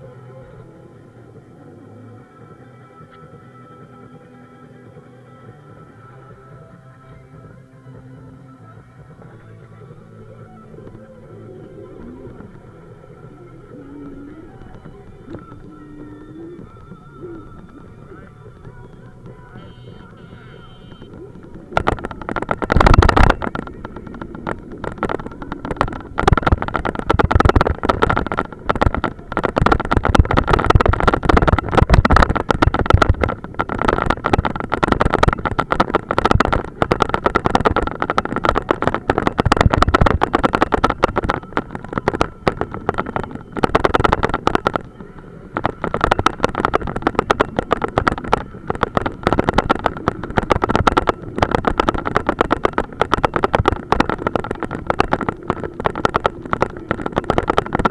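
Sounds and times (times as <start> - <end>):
motorcycle engine running: 0.0 - 57.9
steady whine: 0.0 - 57.9
wind buffeting on microphone: 20.3 - 57.9.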